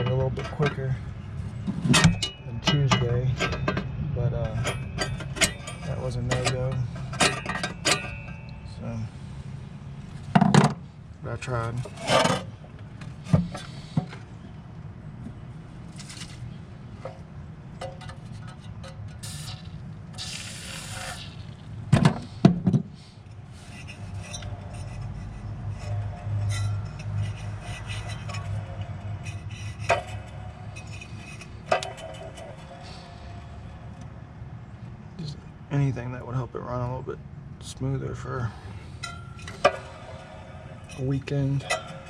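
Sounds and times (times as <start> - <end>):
steady low hum: 0.0 - 42.0
tools and metal parts clinking: 1.8 - 8.8, 23.7 - 34.1, 38.9 - 42.0.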